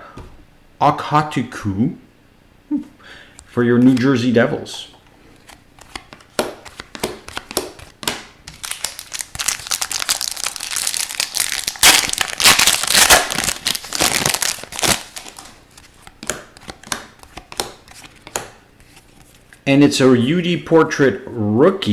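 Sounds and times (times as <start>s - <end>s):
wrapper crinkling: 5.8s - 16.2s.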